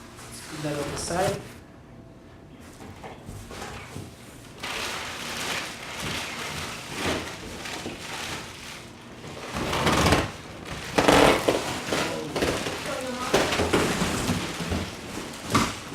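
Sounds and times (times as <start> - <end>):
plastic wrapping crinkling: 3.5 - 15.9.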